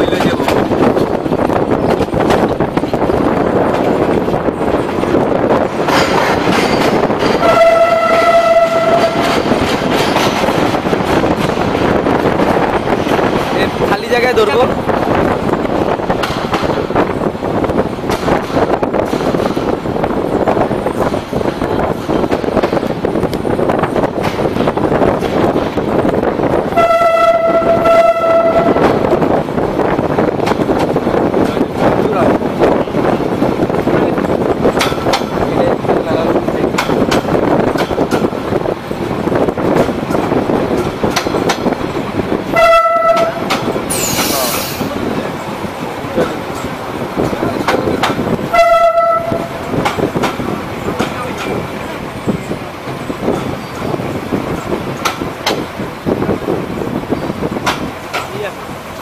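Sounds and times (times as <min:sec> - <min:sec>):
train wheels rumbling on rail: 0:00.0 - 0:59.0
wind at open window: 0:00.0 - 0:59.0
train horn: 0:07.4 - 0:09.5, 0:26.7 - 0:29.0, 0:42.5 - 0:43.5, 0:48.5 - 0:49.6
wheel clicks over rail joints: 0:39.6 - 0:42.0, 0:53.2 - 0:55.8, 0:57.5 - 0:58.5.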